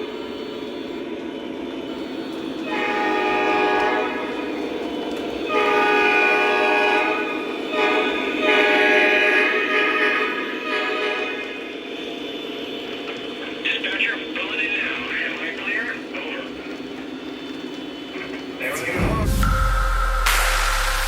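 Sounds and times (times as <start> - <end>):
electronic diesel horn blasts: 0.0 - 13.4
model train running noise: 0.0 - 21.0.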